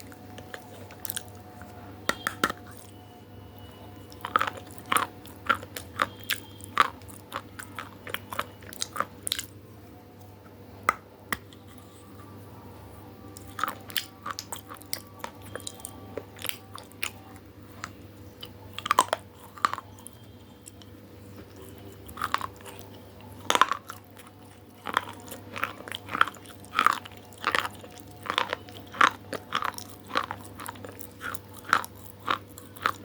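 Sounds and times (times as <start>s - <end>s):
crunchy food chewing: 0.0s - 9.6s, 13.2s - 33.0s.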